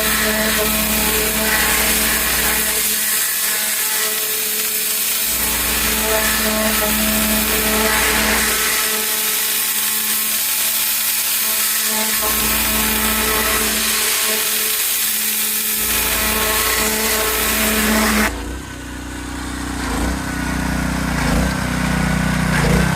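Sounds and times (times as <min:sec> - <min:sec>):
pressure washer spray hiss: 0:00.0 - 0:18.2.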